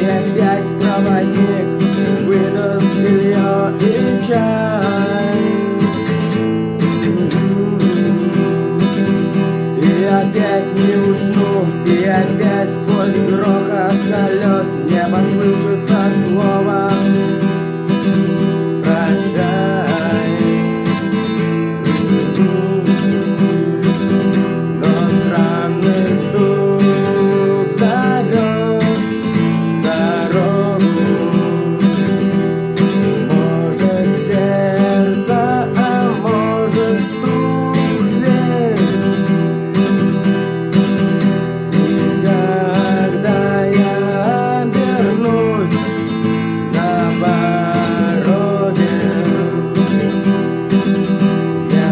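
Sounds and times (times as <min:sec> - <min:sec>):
acoustic guitar strumming: 0:00.0 - 0:51.9.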